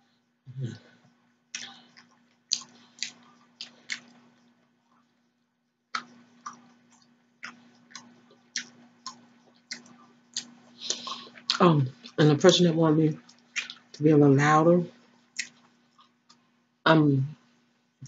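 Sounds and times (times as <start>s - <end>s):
faint hum: 0.0s - 18.0s
chewing shrimp and noodles: 1.5s - 4.6s, 5.9s - 12.5s, 13.2s - 14.0s, 15.3s - 16.4s
wet mouth clicks and smacks: 1.6s - 4.2s, 5.9s - 11.6s, 13.3s - 13.9s, 15.4s - 15.7s.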